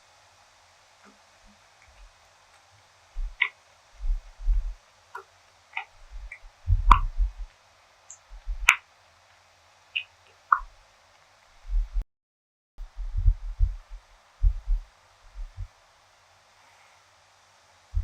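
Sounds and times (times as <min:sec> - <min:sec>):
sharp mouth clicks: 0:03.2 - 0:07.5, 0:10.0 - 0:10.7.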